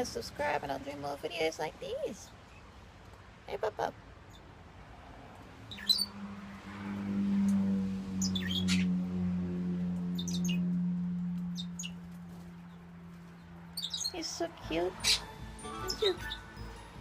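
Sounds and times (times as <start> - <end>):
small birds chirping: 3.6 - 4.6, 5.6 - 6.2, 8.1 - 9.0, 10.0 - 10.8, 11.4 - 17.0.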